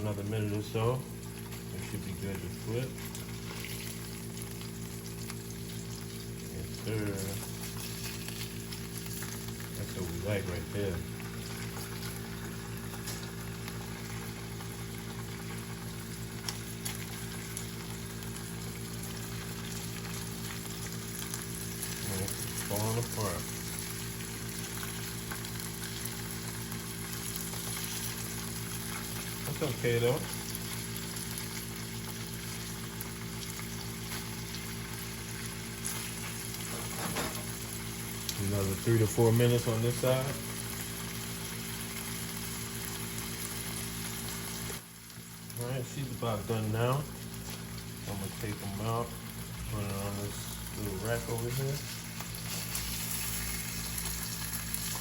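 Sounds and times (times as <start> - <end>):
fish sizzling in hot oil: 0.0 - 55.0
oil popping: 1.1 - 38.5.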